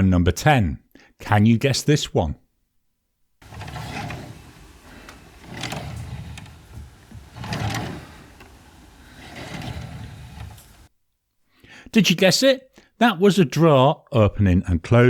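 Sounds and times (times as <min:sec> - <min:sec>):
drawer knocking: 0:03.4 - 0:10.9
drawer sliding: 0:03.4 - 0:10.9.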